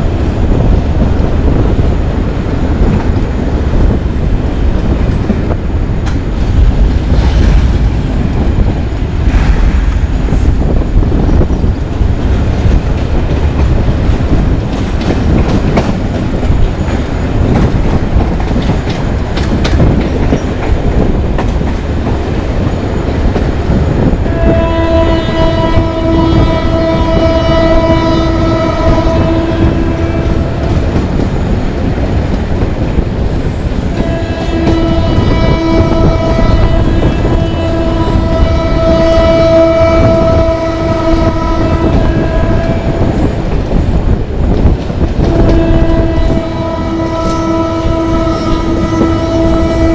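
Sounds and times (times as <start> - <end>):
diesel locomotive rumbling: 0.0 - 49.9
train horn blast: 24.0 - 31.1, 33.9 - 43.4, 45.2 - 49.9.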